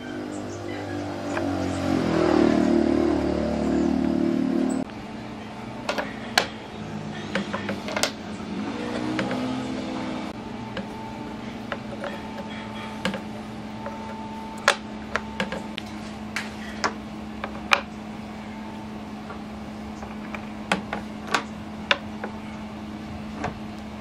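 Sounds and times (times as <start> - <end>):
low steady hum: 0.0 - 24.0
sharp clicks and knocks: 8.9 - 9.6, 11.7 - 15.9, 20.0 - 22.4.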